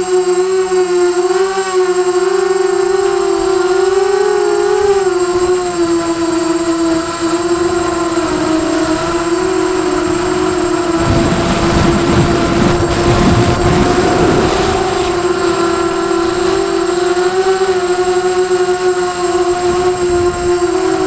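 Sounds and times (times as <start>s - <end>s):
drone motors whining: 0.0s - 21.0s
low rushing noise: 5.3s - 18.2s.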